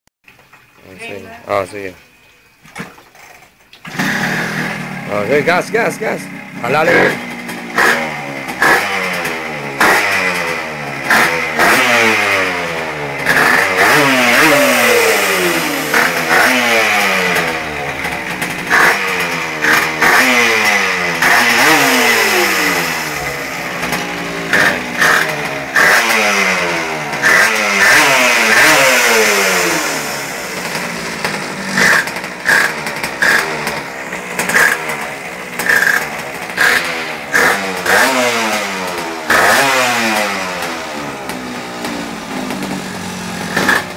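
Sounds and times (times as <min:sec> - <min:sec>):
small two-stroke engine revving: 0:03.2 - 0:43.9
short sharp cracks: 0:43.5 - 0:43.9.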